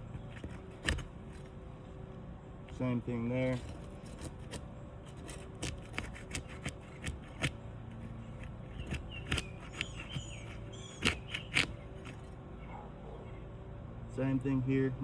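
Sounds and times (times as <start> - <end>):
shingles prying clicks and scrapes: 0.0 - 12.4.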